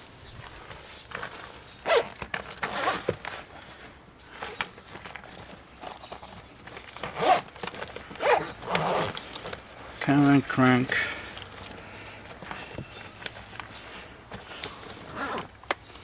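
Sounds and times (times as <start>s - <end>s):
objects scraping and rustling: 0.3s - 16.0s
light metallic clinking: 1.0s - 10.0s.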